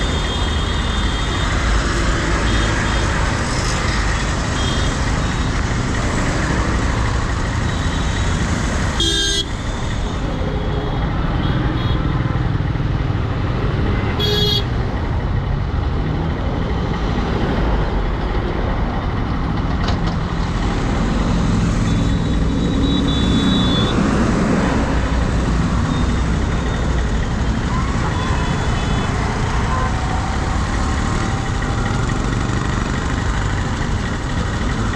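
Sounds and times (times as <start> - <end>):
vehicle horns honking: 9.0 - 9.6, 14.2 - 14.7, 22.1 - 24.0.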